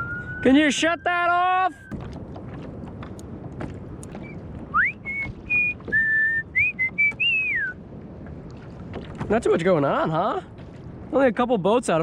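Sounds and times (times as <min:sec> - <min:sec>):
person whistling a tune: 0:04.7 - 0:07.8.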